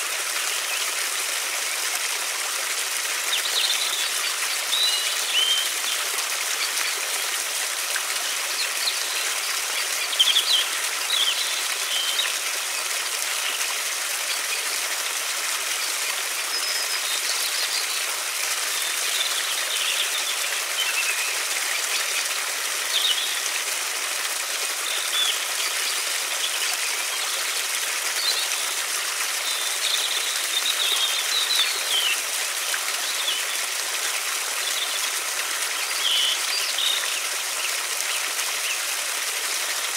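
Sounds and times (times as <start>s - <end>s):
river flowing: 0.0s - 39.9s
small birds chirping: 3.2s - 7.3s, 8.2s - 14.6s, 15.6s - 23.5s, 29.4s - 32.3s.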